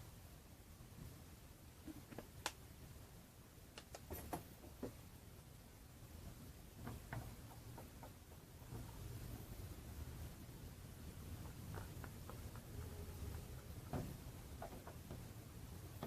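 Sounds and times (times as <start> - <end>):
quiet low hum: 0.0 - 16.0
small clicks and taps: 3.7 - 5.0.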